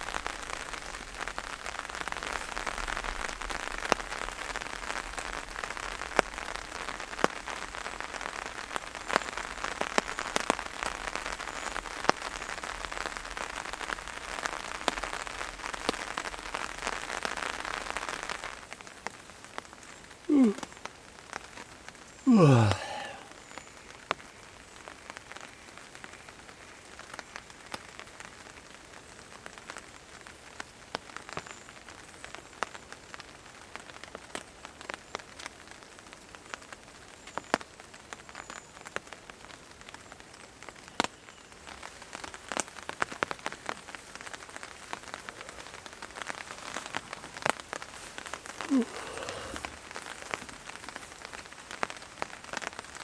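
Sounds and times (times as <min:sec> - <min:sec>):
rain dripping on a tarp: 0:00.0 - 0:53.0
faint hiss: 0:22.2 - 0:24.4, 0:43.4 - 0:53.0.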